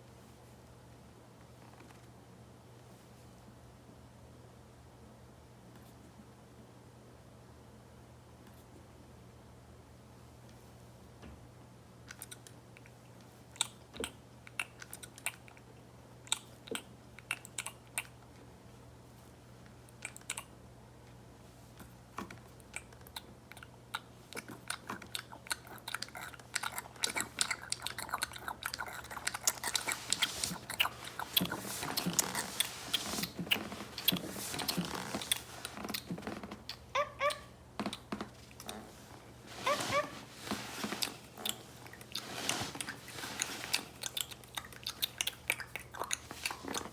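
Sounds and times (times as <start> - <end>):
toy yelp: 36.9 - 37.5, 39.6 - 40.2.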